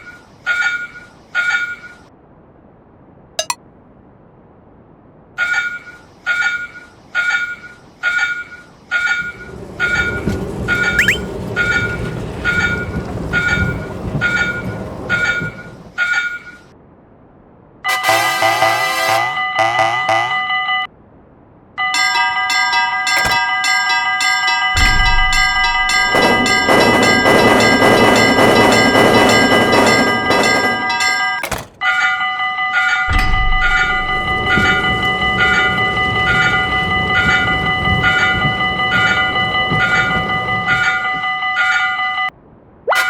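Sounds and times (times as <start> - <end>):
train rumbling past: 8.7 - 16.8, 22.2 - 31.4, 32.8 - 42.4
level-crossing warning bells: 8.9 - 16.6, 17.9 - 20.9, 21.8 - 43.0
pulsing crossing bell: 21.9 - 31.4.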